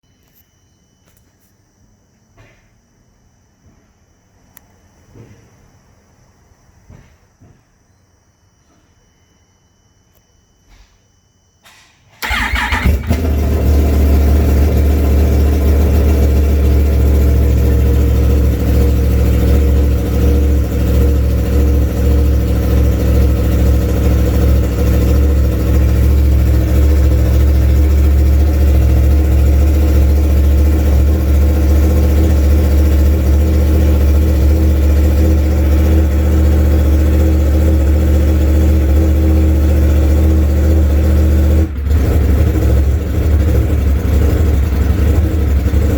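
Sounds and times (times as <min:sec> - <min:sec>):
motorcycle engine starting and idling: 0:11.6 - 0:45.9.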